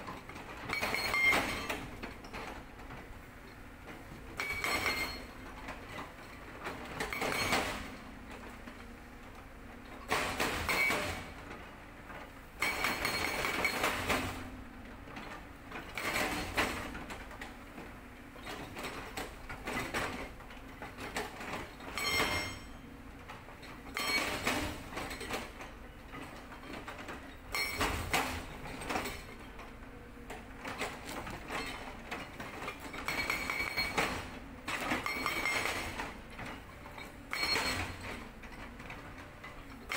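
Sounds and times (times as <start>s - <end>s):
excavator engine noise: 0.0s - 39.9s
hydraulic breaker hammering rock: 0.2s - 2.4s, 4.4s - 5.4s, 7.0s - 8.0s, 10.0s - 11.4s, 12.6s - 14.5s, 15.9s - 17.2s, 20.9s - 22.8s, 23.9s - 29.6s, 30.3s - 39.9s.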